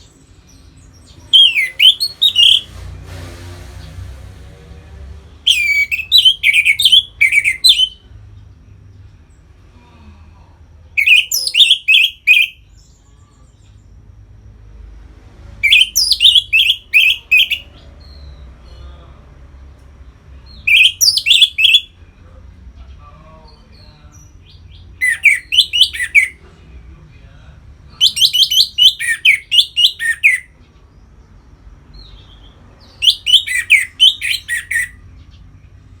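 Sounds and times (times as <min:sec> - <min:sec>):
thrush singing whistled notes: 0:01.3 - 0:02.7, 0:05.5 - 0:08.0, 0:11.0 - 0:12.6, 0:15.6 - 0:18.4, 0:20.5 - 0:22.0, 0:24.4 - 0:26.4, 0:28.0 - 0:30.5, 0:32.8 - 0:35.0.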